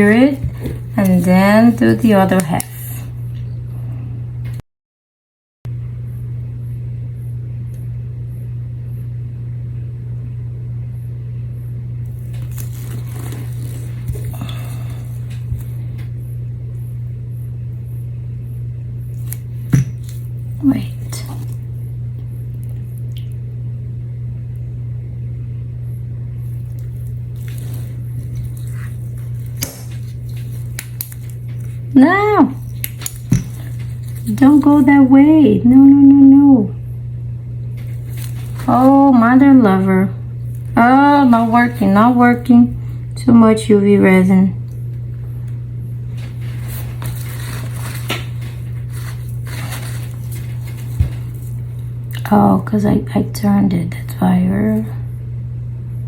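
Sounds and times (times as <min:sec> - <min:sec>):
steady low hum: 0:00.0 - 0:04.6, 0:05.7 - 0:56.0.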